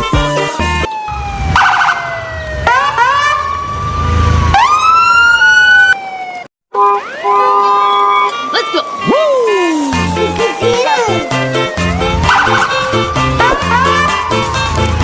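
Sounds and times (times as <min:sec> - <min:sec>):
siren-like electronic sliding tones: 0:06.8 - 0:15.0.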